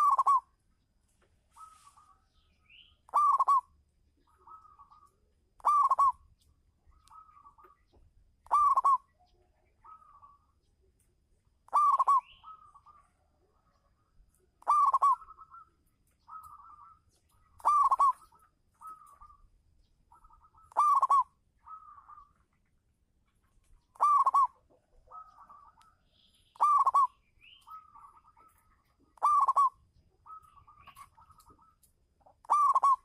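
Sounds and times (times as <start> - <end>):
dove cooing: 0.0 - 0.6, 3.1 - 6.3, 6.9 - 10.5, 11.7 - 19.5, 20.1 - 22.4, 23.6 - 26.0, 26.6 - 33.0.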